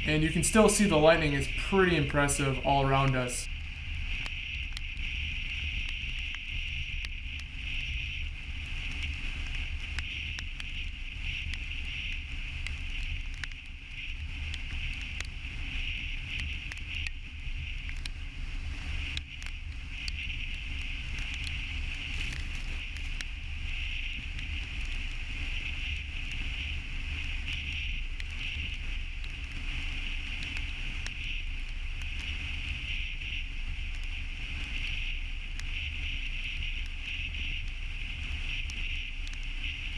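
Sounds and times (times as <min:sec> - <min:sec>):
steady hiss: 0:00.0 - 0:39.9
faint clicks: 0:17.9 - 0:18.2, 0:30.2 - 0:31.4.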